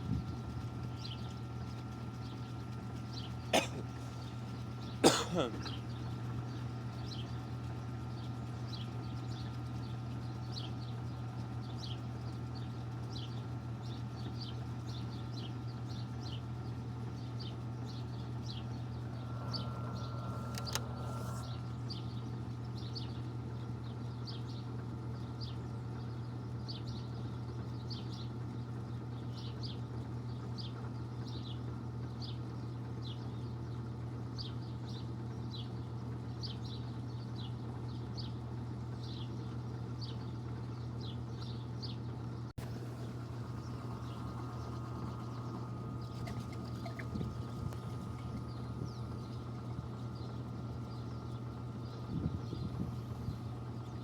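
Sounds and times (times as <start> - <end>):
drain pump whine: 18.6 - 22.4, 42.6 - 54.0
washing machine drum spinning: 42.6 - 48.8.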